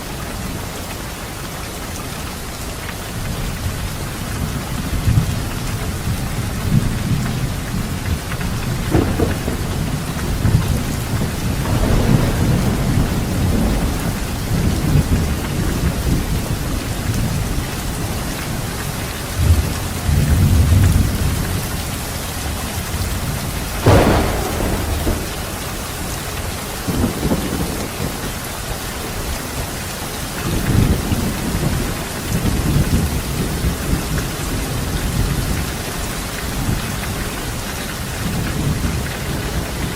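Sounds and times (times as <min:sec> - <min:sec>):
heavy rain: 0:00.0 - 0:39.9
thunder rolling: 0:06.5 - 0:17.6, 0:23.0 - 0:28.7
sharp thunderclap: 0:08.4 - 0:16.4, 0:23.4 - 0:28.4.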